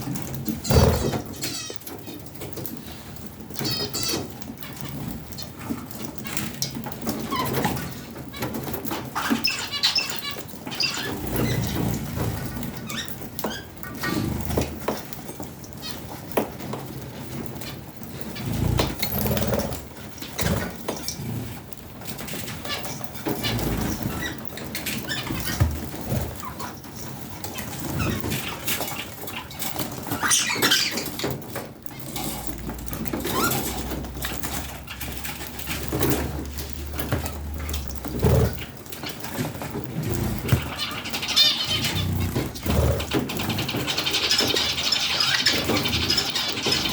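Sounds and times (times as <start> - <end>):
birds scratching and pattering: 0.0 - 46.9
budgerigars chirping: 7.3 - 14.7, 27.5 - 31.4, 33.0 - 46.9
budgerigars chattering: 37.0 - 46.9.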